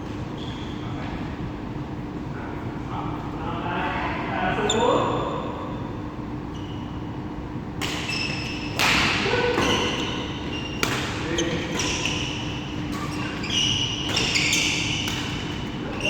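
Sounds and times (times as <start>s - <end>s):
shoe squeaks on court floor: 0.3s - 1.0s, 6.5s - 7.0s, 8.0s - 8.8s, 9.6s - 16.0s
racket hitting shuttlecock: 8.8s - 16.0s.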